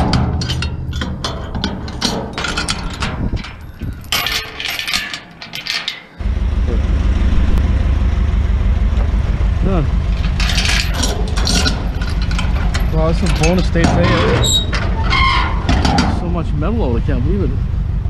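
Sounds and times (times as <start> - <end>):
steady low rumble: 0.0 - 5.5, 6.1 - 18.0
scrap metal clattering: 0.0 - 6.2, 10.0 - 16.4.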